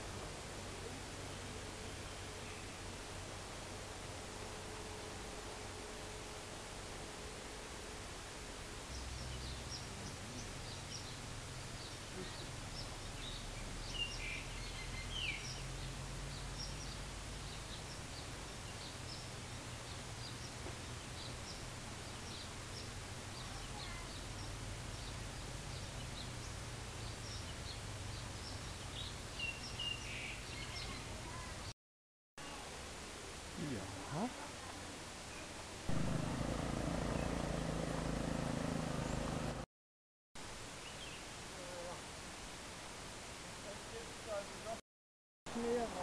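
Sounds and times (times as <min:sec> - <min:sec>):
steady hiss and low rumble: 0:00.0 - 0:31.7, 0:32.4 - 0:39.6, 0:40.4 - 0:44.8
birds chirping: 0:08.9 - 0:31.7, 0:35.3 - 0:39.6.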